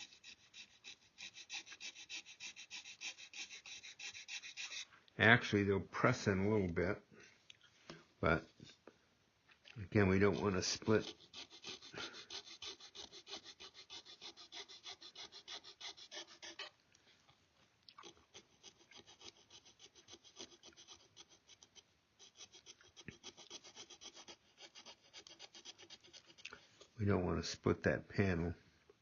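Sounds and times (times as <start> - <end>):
hand file strokes: 0.0 - 5.0, 10.0 - 16.8, 18.0 - 27.0.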